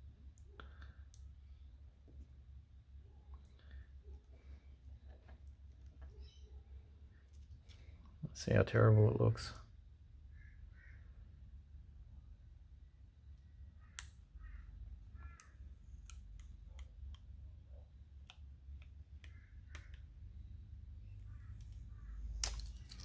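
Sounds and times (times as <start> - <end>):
loud crinkle: 22.2 - 23.0.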